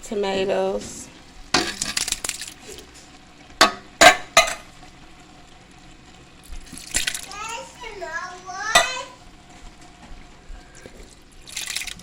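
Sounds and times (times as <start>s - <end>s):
tomatoes rushing into metal pot: 1.5s - 2.6s, 8.6s - 9.2s.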